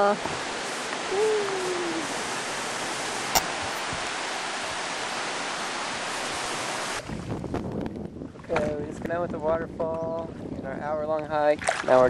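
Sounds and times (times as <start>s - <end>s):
waterfall rushing: 0.0s - 7.0s
person calling out: 1.1s - 2.1s
sharp click: 3.4s - 3.8s.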